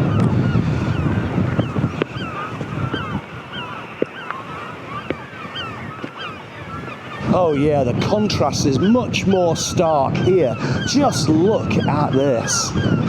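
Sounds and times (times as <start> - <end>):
gulls calling: 0.0 - 13.0
wind buffeting microphone: 0.0 - 13.0.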